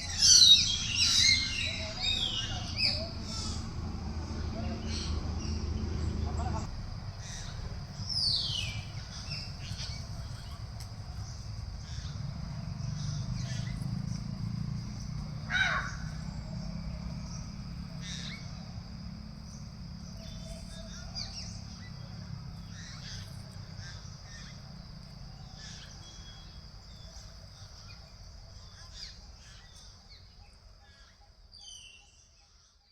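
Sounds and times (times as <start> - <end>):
birds making harsh calls: 0.0 - 24.7.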